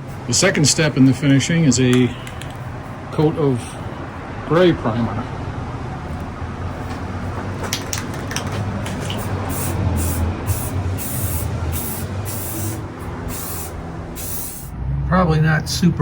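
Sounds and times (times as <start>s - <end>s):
steady low hum: 8.6s - 16.0s
spray paint hissing bursts: 9.1s - 14.7s.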